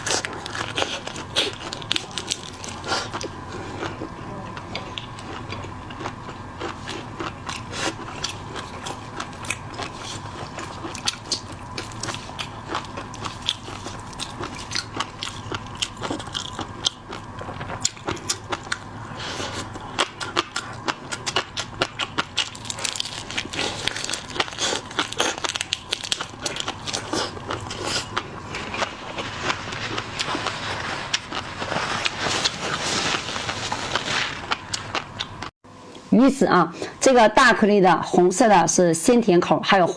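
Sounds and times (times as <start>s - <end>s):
person chewing seafood: 0.0s - 36.0s.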